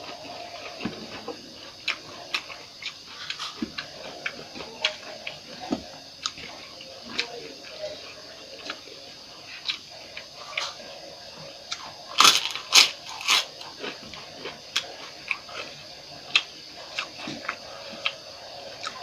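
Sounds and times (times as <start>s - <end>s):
chewing and crunching food: 0.0s - 19.0s.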